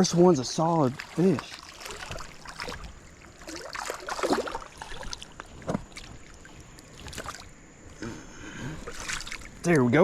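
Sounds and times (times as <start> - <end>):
fish splashing in water: 0.7 - 7.5, 8.8 - 9.6.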